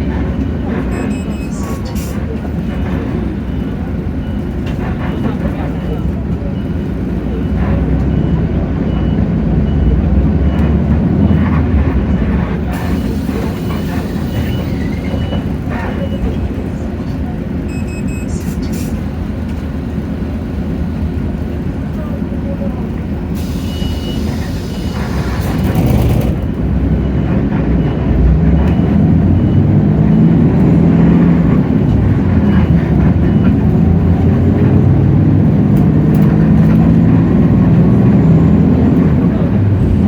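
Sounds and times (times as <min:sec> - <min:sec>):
bus diesel engine running: 0:00.0 - 0:40.0
thin repeating beep: 0:00.9 - 0:01.8.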